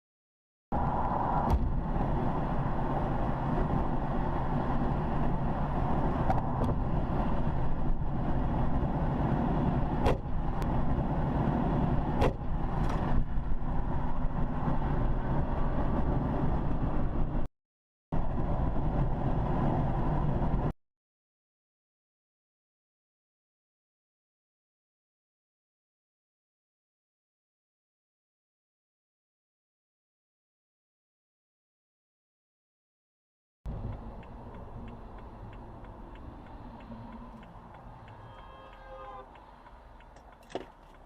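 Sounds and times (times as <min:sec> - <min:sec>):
car engine and tyre rumble: 0:00.7 - 0:17.5, 0:18.2 - 0:20.8, 0:33.7 - 0:41.0.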